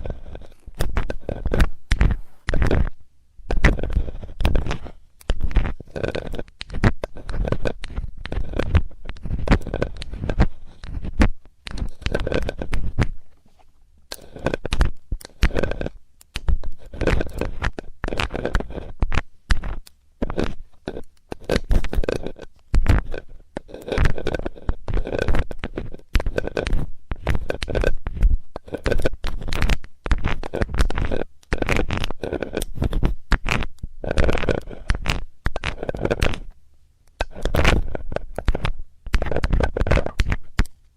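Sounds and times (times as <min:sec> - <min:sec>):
metal tool scraping microphone: 0:00.0 - 0:36.6, 0:37.2 - 0:40.6.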